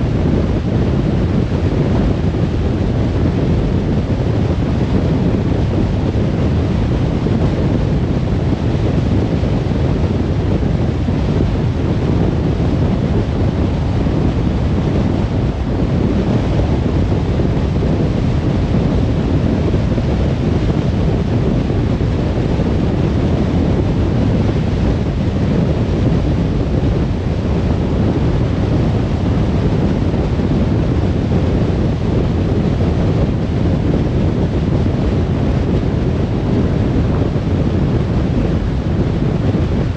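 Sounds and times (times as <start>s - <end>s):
wind rush: 0.0s - 39.9s.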